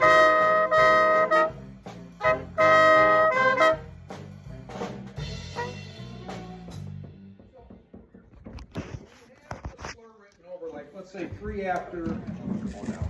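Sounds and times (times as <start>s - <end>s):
brass and saxophone chords: 0.0s - 7.2s
drum kit: 0.0s - 9.1s.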